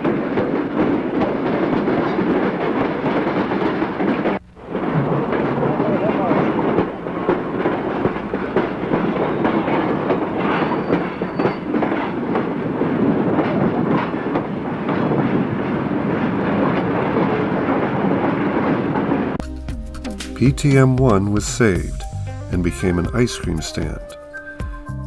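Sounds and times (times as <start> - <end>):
train wheels clanking over rail joints: 0.0 - 19.4
train rumbling: 0.0 - 25.0.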